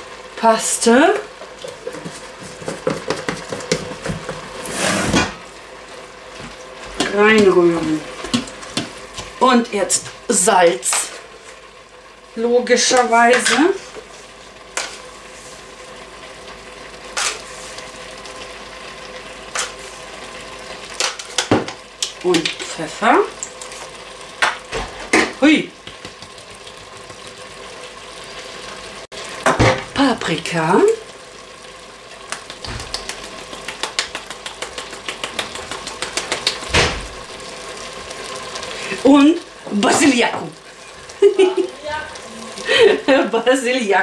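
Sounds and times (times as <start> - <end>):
meat and vegetables sizzling: 0.0 - 44.0
quick irregular clicks and crackles: 32.3 - 36.7.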